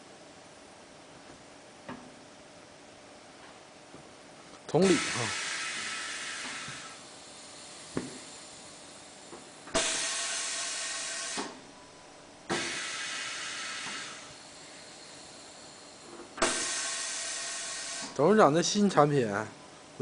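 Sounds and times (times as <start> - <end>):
compressed air hissing: 4.8 - 11.7, 12.5 - 18.2.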